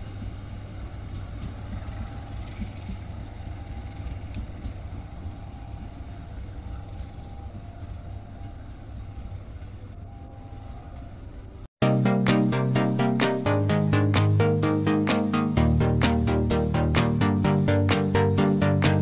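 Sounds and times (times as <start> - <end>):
train wheels rumbling on rails: 0.0 - 11.7.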